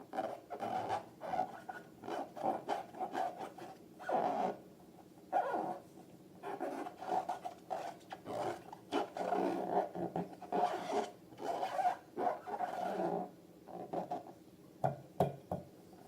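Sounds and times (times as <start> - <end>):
rubber balloons squeaking: 0.2 - 4.6, 5.4 - 5.8, 6.4 - 14.2.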